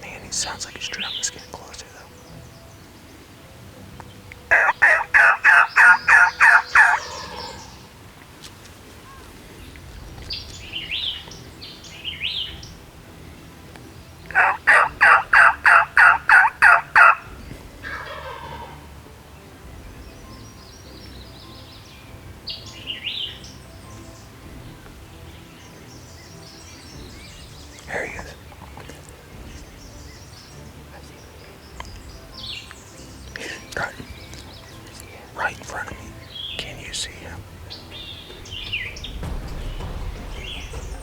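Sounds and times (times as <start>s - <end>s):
soft high turkey calls: 0.0s - 19.2s
wild turkey yelping: 4.5s - 8.4s, 14.2s - 19.0s.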